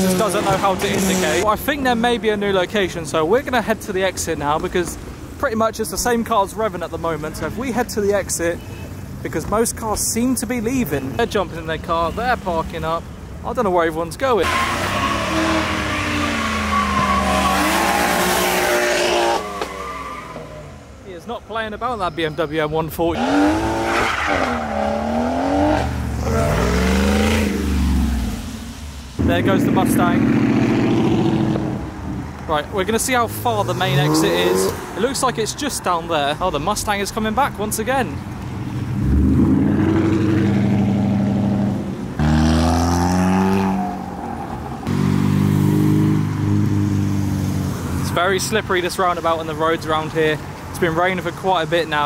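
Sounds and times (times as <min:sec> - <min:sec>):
car engine revving: 0:00.0 - 0:01.5, 0:14.4 - 0:20.8, 0:23.2 - 0:32.2, 0:33.0 - 0:35.1, 0:38.8 - 0:48.5.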